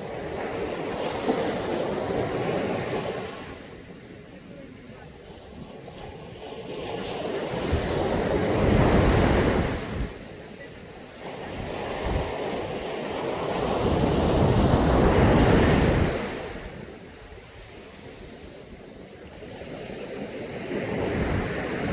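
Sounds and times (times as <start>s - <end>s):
waves breaking on a beach: 0.0s - 21.9s.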